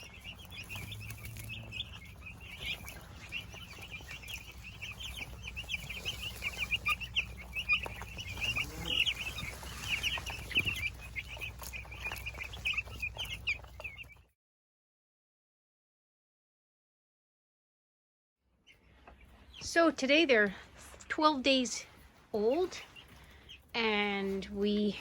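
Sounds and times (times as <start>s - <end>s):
chicks peeping: 0.0s - 14.3s, 18.6s - 25.0s.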